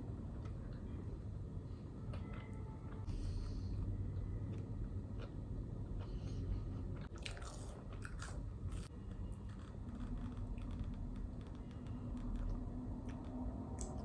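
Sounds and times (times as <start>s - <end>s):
low room hum: 0.0s - 14.0s
person chewing crunchy food: 4.5s - 10.7s.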